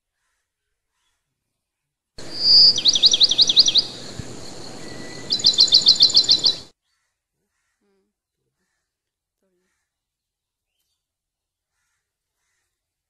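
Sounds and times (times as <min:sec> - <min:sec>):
songbird singing: 0:02.2 - 0:06.7.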